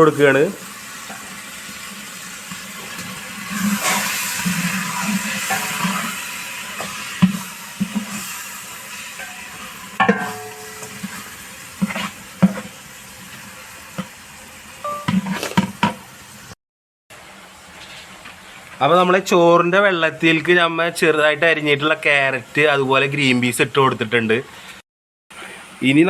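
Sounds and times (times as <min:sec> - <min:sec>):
masala sizzling in a pot: 0:00.0 - 0:23.6
spoon knocking and scraping pot: 0:09.2 - 0:11.2, 0:14.9 - 0:15.9.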